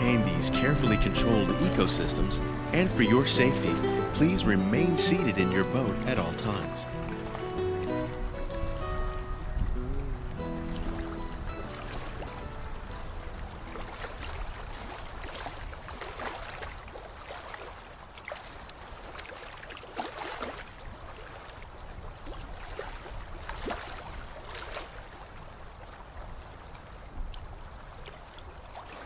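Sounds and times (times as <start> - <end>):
water lapping and splashing: 0.0 - 29.0
steady low rumble: 8.7 - 13.6.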